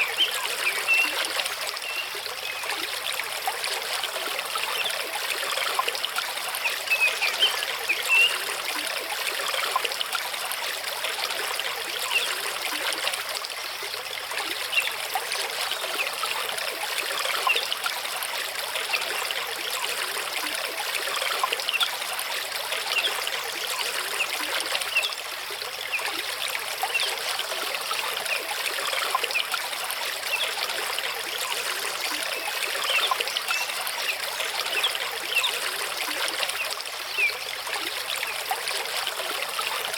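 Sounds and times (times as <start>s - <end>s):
stream rushing over rocks: 0.0s - 2.4s
water trickles and splashes: 0.0s - 39.9s.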